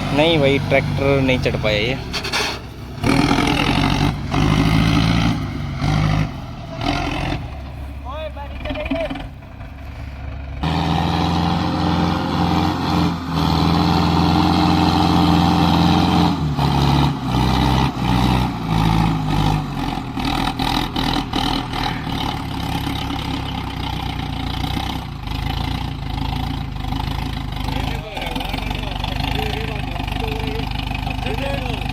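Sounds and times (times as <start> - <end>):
short engine knocks: 0.0 - 10.6
tractor diesel engine revving: 0.0 - 31.9.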